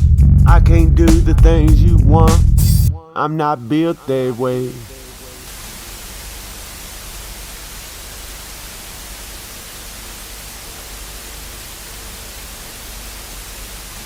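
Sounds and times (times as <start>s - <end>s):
static hiss: 4.0s - 14.0s.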